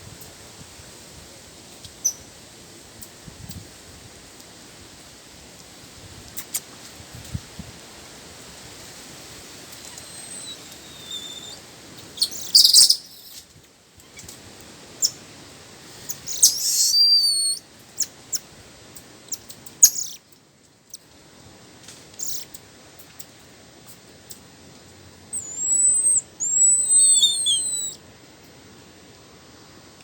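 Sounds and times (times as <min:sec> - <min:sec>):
faint steady hiss: 0:00.0 - 0:30.0
birds whistling and chirping: 0:10.0 - 0:11.6, 0:12.2 - 0:13.4, 0:16.1 - 0:17.6, 0:19.8 - 0:20.2, 0:25.4 - 0:28.0.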